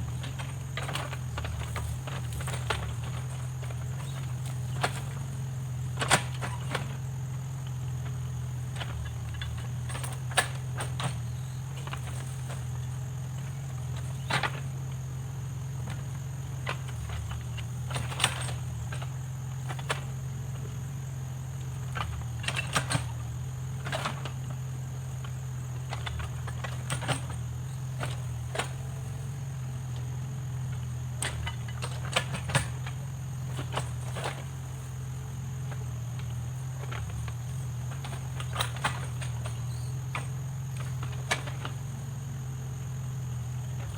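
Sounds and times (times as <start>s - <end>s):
diesel engine humming: 0.0s - 43.9s.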